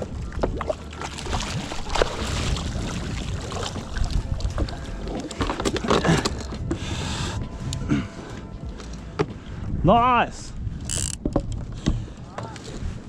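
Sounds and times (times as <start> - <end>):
water sloshing and splashing: 0.0 - 6.8
wind buffeting microphone: 0.0 - 13.0
small clicks and knocks: 10.9 - 11.7.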